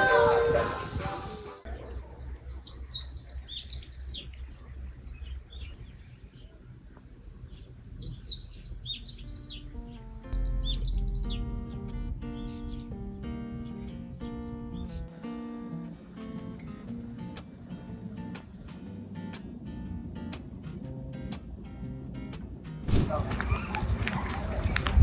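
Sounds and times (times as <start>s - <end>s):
songbirds chirping: 1.6s - 25.0s
low steady rumble: 4.2s - 22.6s
acoustic guitar music: 9.0s - 22.9s.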